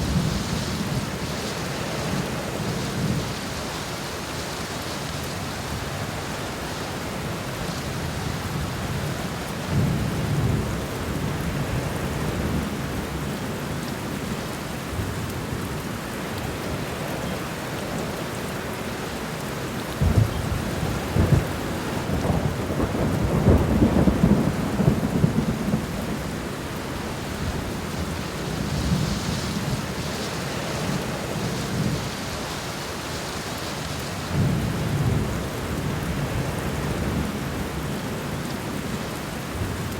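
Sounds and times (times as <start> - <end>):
steady rain falling: 0.0 - 39.9
deep thunder rumbles: 20.0 - 30.2.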